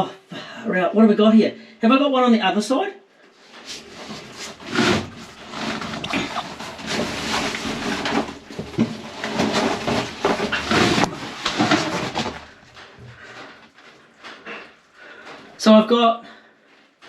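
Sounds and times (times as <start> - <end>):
scraping: 3.4 - 15.6.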